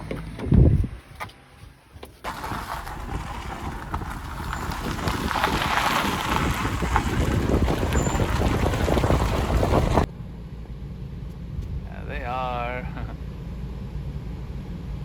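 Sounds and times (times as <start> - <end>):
car driving rumble: 0.0 - 15.0
wind buffeting microphone: 2.3 - 10.1.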